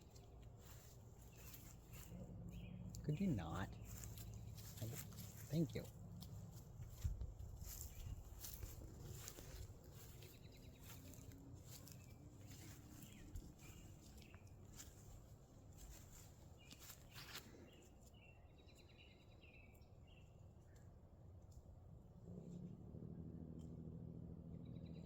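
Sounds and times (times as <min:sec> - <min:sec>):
faint bird chirps: 0:00.7 - 0:05.0.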